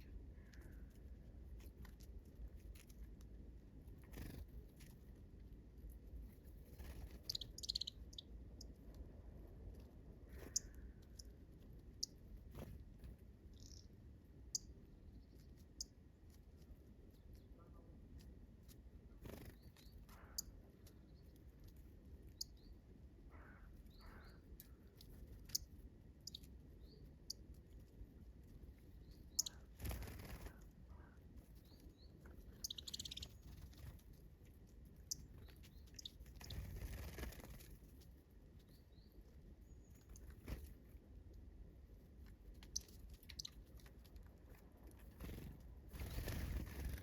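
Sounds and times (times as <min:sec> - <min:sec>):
birds chirping: 0:06.7 - 0:08.8, 0:10.2 - 0:12.7, 0:13.5 - 0:16.0, 0:19.1 - 0:21.5, 0:22.3 - 0:27.4, 0:28.8 - 0:34.0, 0:35.0 - 0:37.7, 0:42.6 - 0:43.7.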